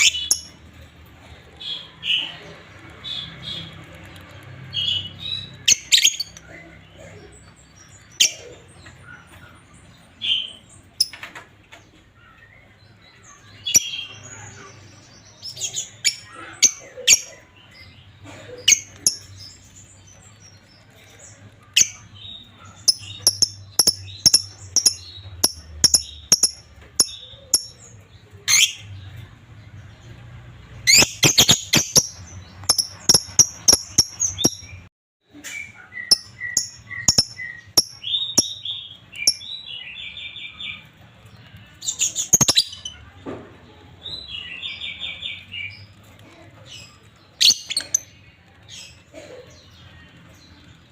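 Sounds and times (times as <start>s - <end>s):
lovebirds chirping and squawking: 0.0s - 43.2s, 43.9s - 50.9s.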